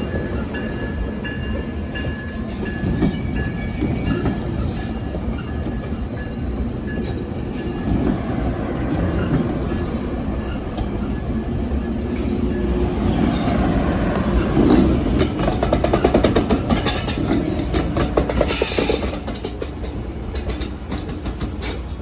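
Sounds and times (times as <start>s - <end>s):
train rumbling past: 0.0s - 22.0s
wheels clicking over rail joints: 0.6s - 22.0s
wheel squeal: 2.0s - 11.5s, 12.1s - 19.4s.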